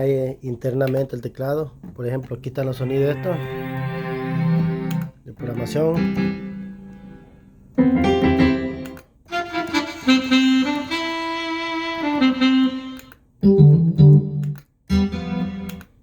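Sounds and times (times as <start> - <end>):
synthesizer playing short phrases: 2.8 - 8.9
sax-like synth melody over chords: 2.8 - 15.9.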